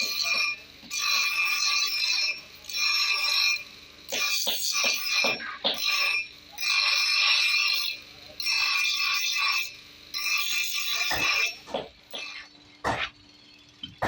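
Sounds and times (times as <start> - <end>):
metal scraping on steel: 0.0 - 12.5
sharp knocks: 11.1 - 13.2.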